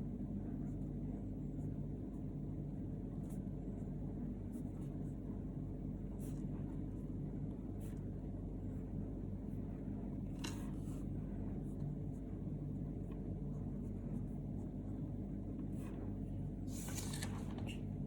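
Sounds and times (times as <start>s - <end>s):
faint hum: 0.0s - 18.0s.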